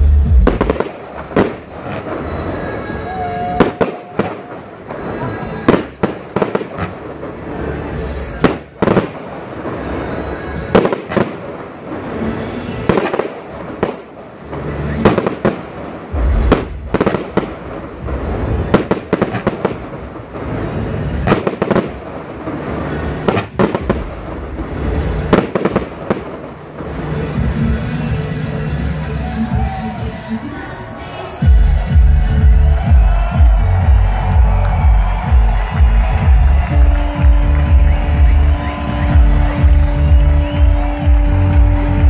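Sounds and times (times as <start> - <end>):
fireworks shells bursting: 0.4 - 28.6.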